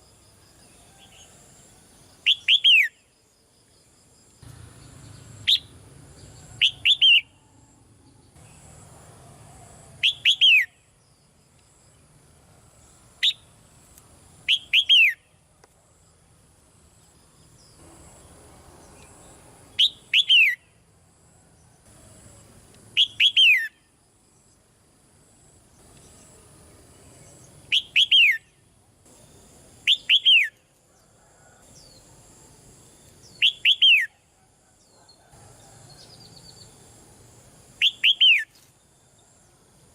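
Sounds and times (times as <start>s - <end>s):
bird calling: 6.4s - 7.4s, 10.0s - 10.7s, 14.5s - 15.2s, 23.0s - 23.8s, 27.7s - 28.4s, 29.9s - 30.6s, 33.4s - 34.2s, 37.8s - 38.6s.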